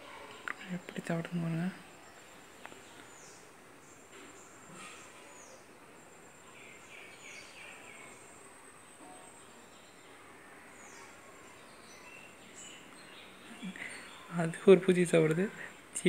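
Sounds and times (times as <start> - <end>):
distant bird calls: 0.0 - 16.0
outdoor background hiss: 0.0 - 16.0.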